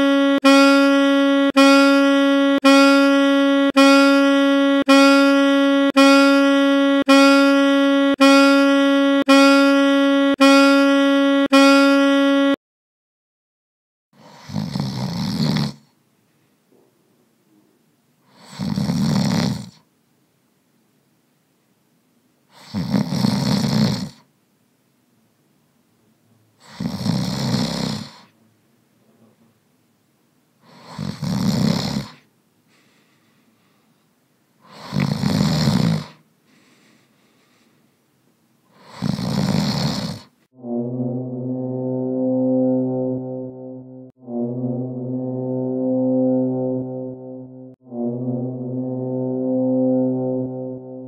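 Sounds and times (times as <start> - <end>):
person snoring: 14.2 - 15.9, 18.3 - 19.8, 22.5 - 24.2, 26.6 - 28.3, 30.7 - 32.2, 34.7 - 36.2, 38.8 - 40.3.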